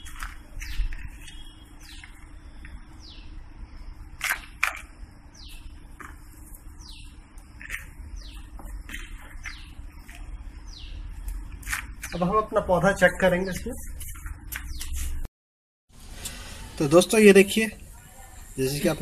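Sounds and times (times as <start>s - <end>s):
bird calling with high chirps: 0.0s - 3.4s, 5.3s - 5.8s, 6.7s - 11.2s.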